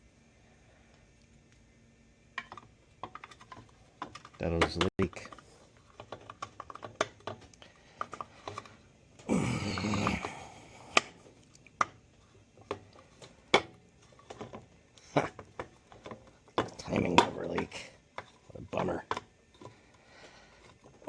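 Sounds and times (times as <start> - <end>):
clicks and taps of metal parts: 2.4 - 8.7.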